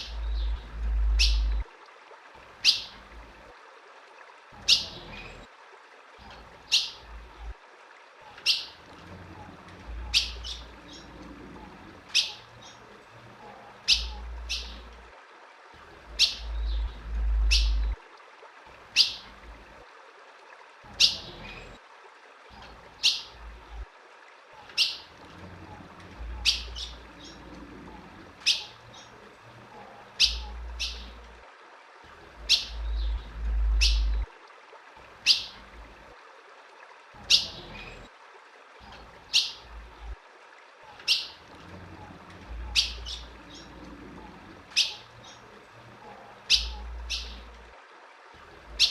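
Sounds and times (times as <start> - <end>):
bird chip calls: 0.0 - 1.6, 12.1 - 12.8, 13.8 - 14.9, 16.1 - 18.0, 28.4 - 29.1, 30.2 - 31.2, 32.4 - 34.2, 40.9 - 41.4, 42.6 - 43.7, 44.8 - 45.4, 46.5 - 47.5.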